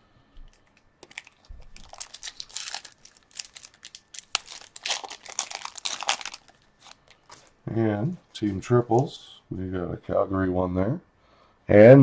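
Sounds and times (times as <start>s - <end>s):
foil wrapper crinkling and tearing: 0.5s - 7.6s.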